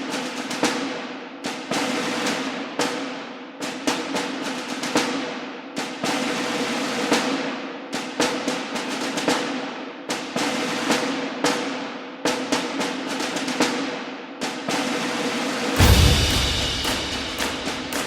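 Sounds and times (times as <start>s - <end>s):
sharp drum hits: 15.8s - 18.0s.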